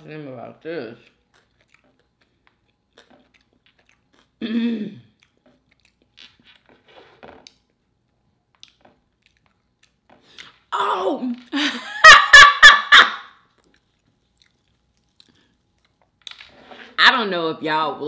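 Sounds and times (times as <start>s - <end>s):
chewing food with crunches: 1.0s - 4.4s, 5.0s - 10.7s, 13.4s - 16.5s.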